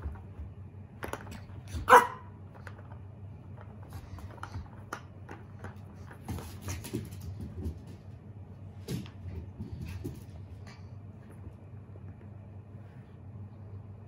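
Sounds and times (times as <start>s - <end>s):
puppy barking: 1.8s - 2.4s.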